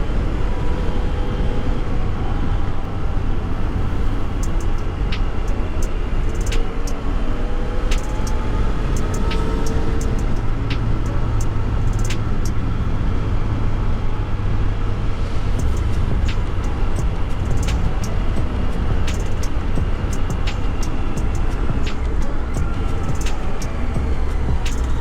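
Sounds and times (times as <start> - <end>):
motorcycle engine drone: 0.0 - 25.0
wind rushing past microphone: 0.0 - 25.0.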